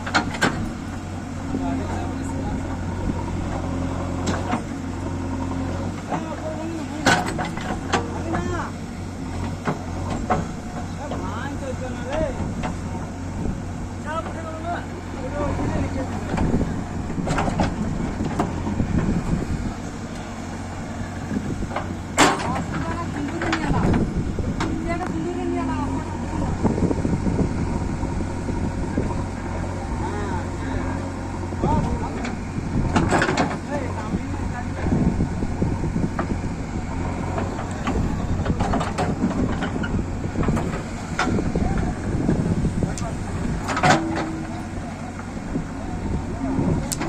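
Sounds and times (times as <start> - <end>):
diesel engine running: 0.0 - 47.0
sharp knocks and clanks: 21.7 - 24.0.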